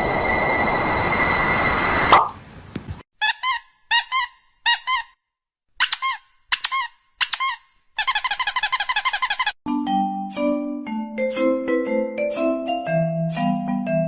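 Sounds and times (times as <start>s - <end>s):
high-pitched squeaks: 5.8s - 9.6s.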